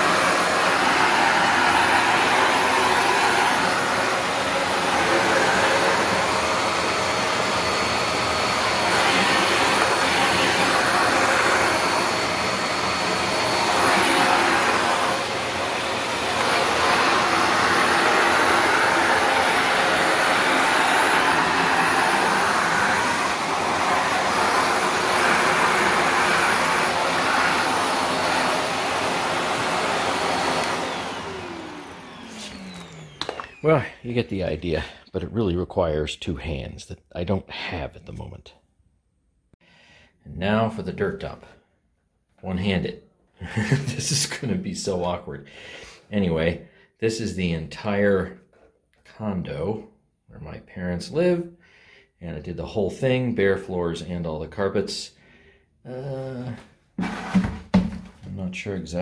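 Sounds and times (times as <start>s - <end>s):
vacuum cleaner running: 0.0s - 35.0s, 43.4s - 45.0s, 55.9s - 58.3s.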